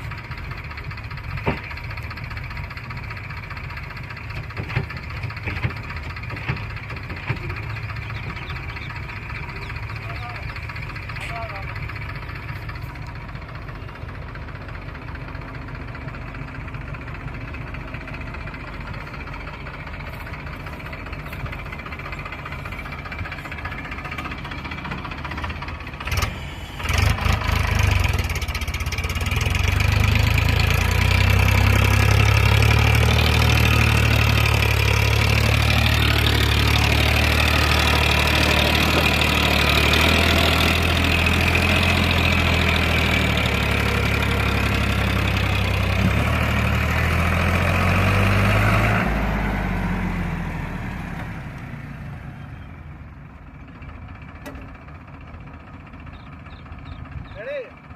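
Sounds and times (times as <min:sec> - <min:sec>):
tractor loader engine running: 0:00.0 - 0:57.9.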